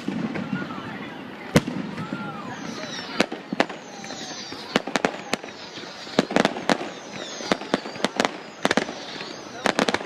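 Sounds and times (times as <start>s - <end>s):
fireworks bangs: 0.0s - 10.0s
firework whistles falling in pitch: 2.0s - 10.0s.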